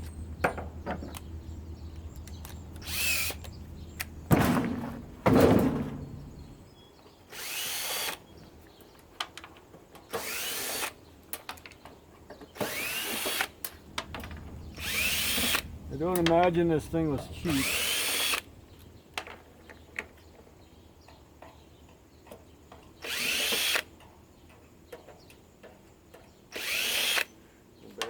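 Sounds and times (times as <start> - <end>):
cordless drill motor whine: 1.1 - 4.2, 7.3 - 8.2, 10.2 - 10.9, 12.6 - 13.5, 14.1 - 15.9, 17.5 - 18.5, 23.0 - 23.9, 26.5 - 27.3
parts knocking: 2.0 - 6.6.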